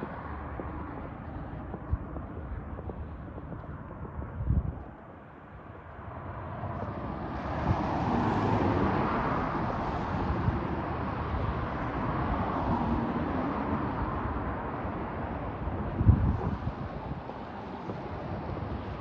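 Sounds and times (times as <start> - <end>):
vehicle passing on snowy street: 5.2 - 19.0.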